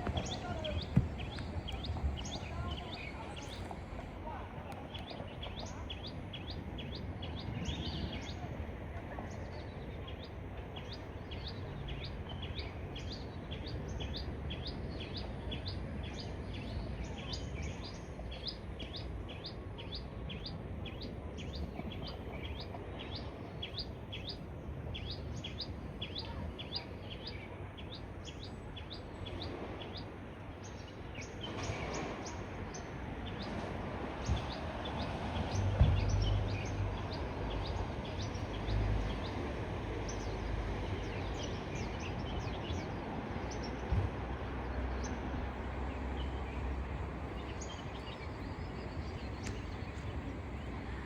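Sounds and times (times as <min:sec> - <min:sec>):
broad rushing noise: 0:00.0 - 0:22.2
low background rumble: 0:00.0 - 0:51.0.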